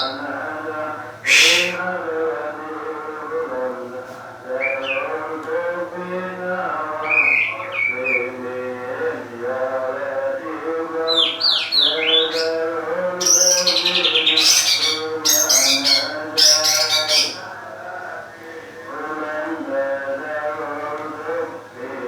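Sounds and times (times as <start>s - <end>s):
bird chirping and squawking: 0.0s - 0.2s, 1.3s - 1.8s, 11.1s - 17.4s
chanted or sung melody: 0.0s - 22.0s.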